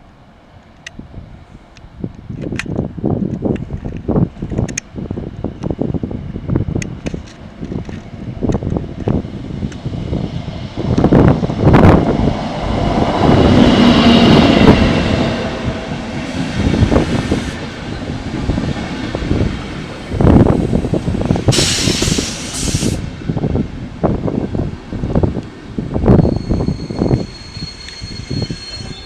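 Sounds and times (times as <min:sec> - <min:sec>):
train wheels rumbling on rails: 0:00.0 - 0:29.0
high hissing burst: 0:20.7 - 0:23.2.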